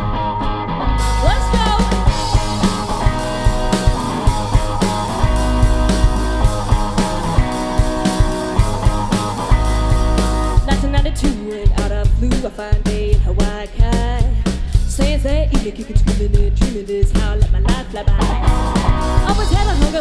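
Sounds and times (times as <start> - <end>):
live rock band playing: 1.0 - 12.4, 17.7 - 20.0
drum kit beat: 1.0 - 20.0.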